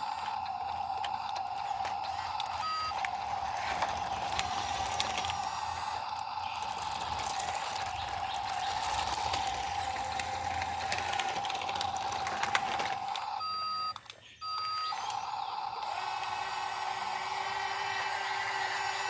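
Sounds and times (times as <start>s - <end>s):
small electric motor whirring: 0.0s - 13.4s, 14.8s - 19.0s
short electronic beeps: 2.5s - 3.0s, 13.4s - 15.1s.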